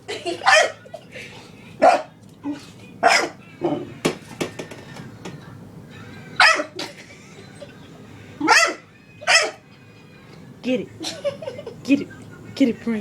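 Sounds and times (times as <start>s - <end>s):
dog barking: 0.4s - 0.8s, 1.8s - 2.1s, 3.0s - 3.4s, 6.4s - 6.8s, 8.4s - 9.6s.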